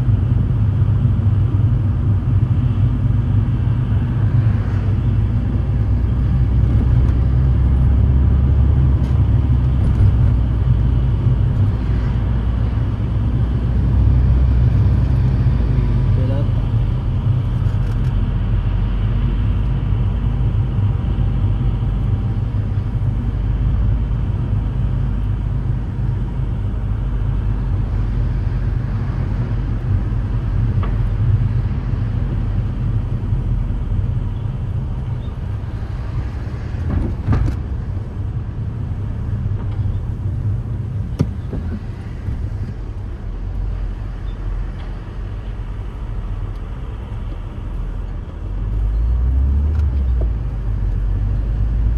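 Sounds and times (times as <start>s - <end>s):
car engine and road rumble: 0.0s - 51.9s.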